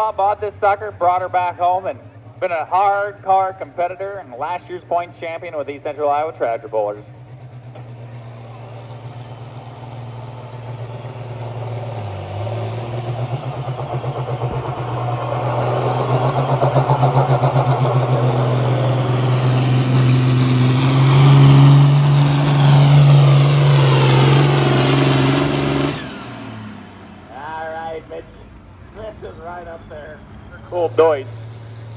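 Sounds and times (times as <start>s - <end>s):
tractor diesel engine at full throttle: 0.0s - 31.9s.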